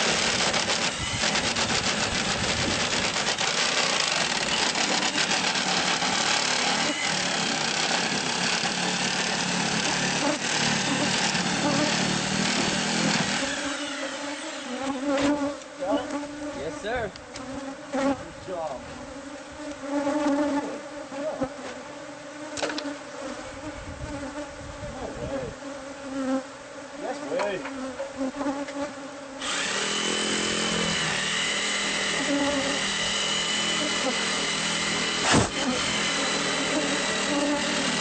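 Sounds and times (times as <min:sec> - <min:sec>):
loud mechanical hum: 0:00.0 - 0:14.2, 0:29.4 - 0:38.0
bees buzzing: 0:00.0 - 0:38.0.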